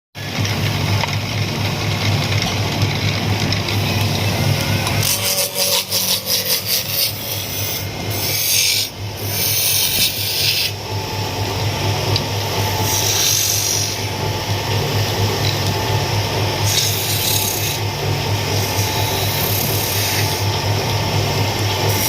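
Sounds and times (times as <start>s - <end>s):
woodworking machine humming: 0.2s - 22.0s
wood scraping rasp: 12.8s - 14.1s, 16.6s - 17.8s, 18.4s - 20.5s.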